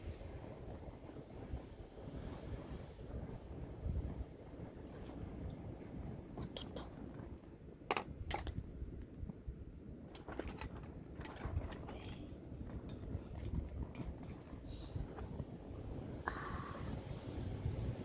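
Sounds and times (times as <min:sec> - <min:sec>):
low rumbling wind: 0:00.0 - 0:18.0
clicks and knocks: 0:07.9 - 0:08.6.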